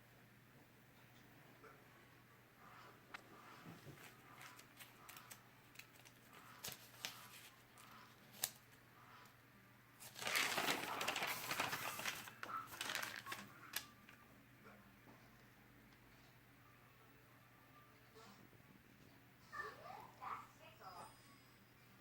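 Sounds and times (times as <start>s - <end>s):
paper pages rustling: 4.0s - 8.7s, 10.0s - 14.2s.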